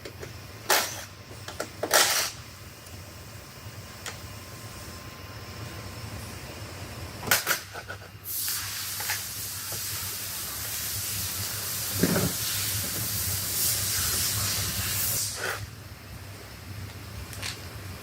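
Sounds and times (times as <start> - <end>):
pneumatic tool air hiss: 7.3 - 15.8.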